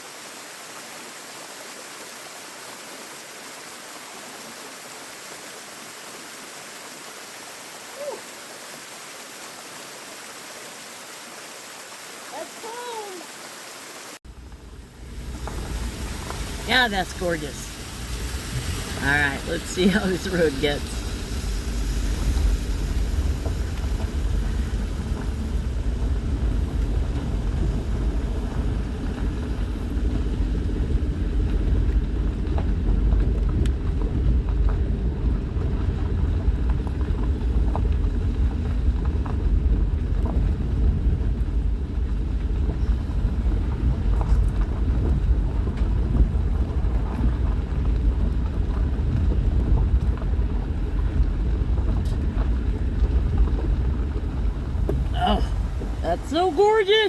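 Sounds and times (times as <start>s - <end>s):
vehicle engine and tyres rumble: 14.0s - 57.0s.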